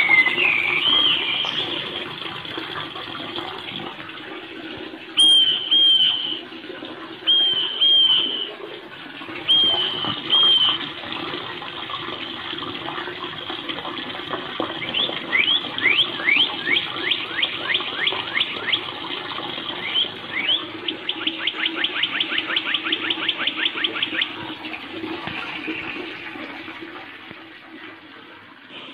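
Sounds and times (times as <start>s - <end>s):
songbirds calling: 0.0s - 1.9s, 5.2s - 6.4s, 7.3s - 8.5s, 9.5s - 10.8s, 14.8s - 19.0s, 19.6s - 24.4s.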